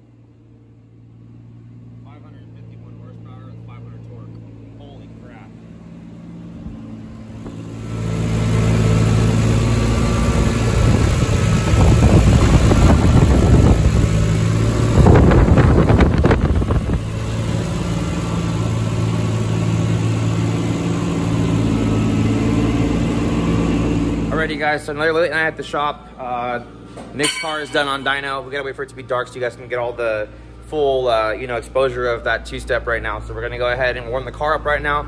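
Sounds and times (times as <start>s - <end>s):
car engine running loud: 0.0s - 35.0s.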